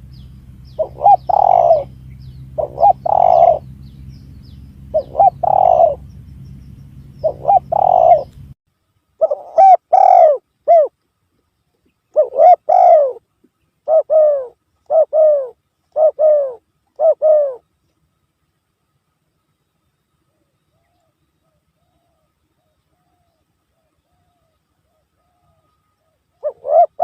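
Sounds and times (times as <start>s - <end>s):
faint low hum: 0.0s - 27.0s
dove cooing: 0.7s - 3.7s, 4.9s - 6.1s, 7.2s - 8.5s, 9.2s - 10.9s, 12.1s - 13.2s, 13.8s - 17.6s, 20.3s - 27.0s.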